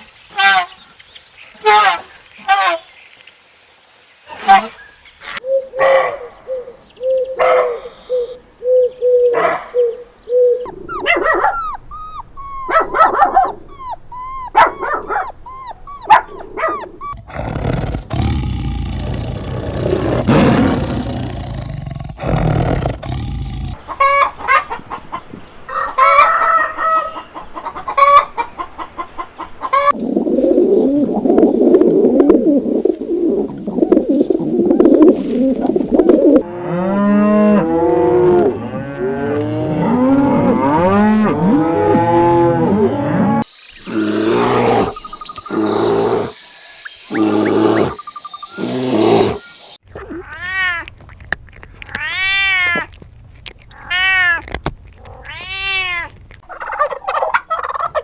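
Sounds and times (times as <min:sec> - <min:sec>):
hens clucking: 0:10.5 - 0:25.1, 0:49.9 - 0:58.0
rooster crowing: 0:25.7 - 0:27.1.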